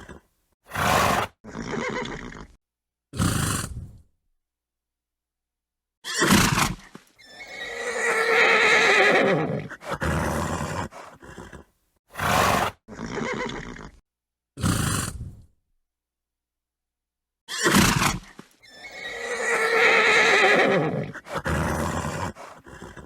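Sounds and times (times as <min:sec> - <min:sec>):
horse neighing: 0:00.0 - 0:02.6, 0:06.1 - 0:14.0, 0:17.5 - 0:23.0.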